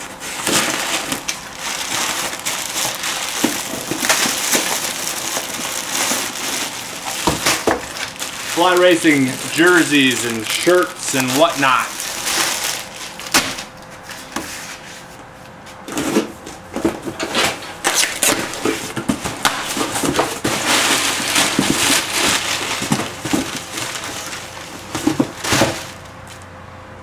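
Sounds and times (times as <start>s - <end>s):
plastic and cardboard rustling: 0.0s - 26.5s.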